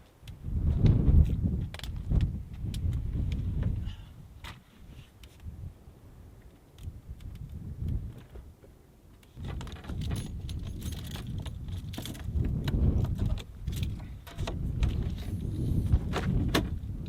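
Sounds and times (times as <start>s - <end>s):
small metal objects clicking and jangling: 9.6s - 12.3s.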